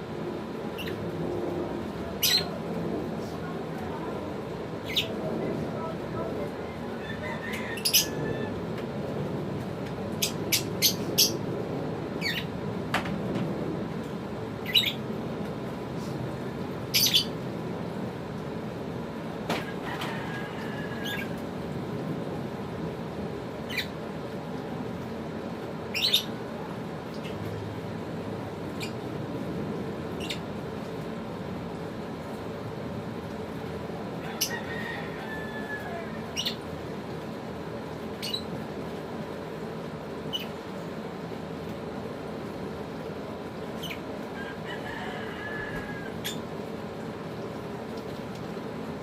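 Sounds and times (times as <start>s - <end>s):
steady background noise: 0.0s - 49.0s
lovebirds chirping and squawking: 0.8s - 1.0s, 2.2s - 2.6s, 4.8s - 5.2s, 7.0s - 8.6s, 10.2s - 11.4s, 12.2s - 12.5s, 14.6s - 15.0s, 16.9s - 17.4s, 21.0s - 21.4s, 23.7s - 24.0s, 25.9s - 26.4s, 30.2s - 30.5s, 34.4s - 34.6s, 36.2s - 36.6s, 38.2s - 38.5s, 40.3s - 40.6s, 43.8s - 44.1s, 46.1s - 46.4s.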